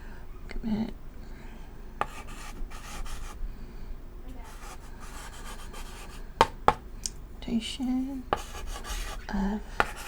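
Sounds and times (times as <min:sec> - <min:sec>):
chalk tapping board: 0:02.0 - 0:03.3, 0:08.3 - 0:09.2, 0:09.8 - 0:10.0
chalk scratching on chalkboard: 0:02.0 - 0:03.4, 0:04.4 - 0:06.2, 0:08.3 - 0:10.0.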